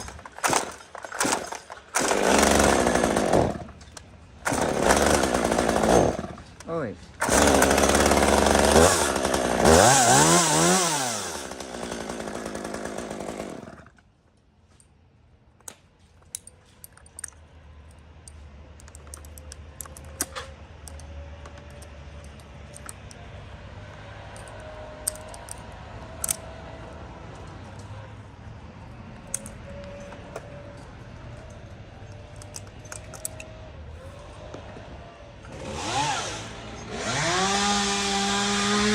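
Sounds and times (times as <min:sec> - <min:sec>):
chainsaw revving: 0:00.4 - 0:03.8, 0:04.4 - 0:06.4, 0:07.2 - 0:14.0, 0:35.5 - 0:38.9.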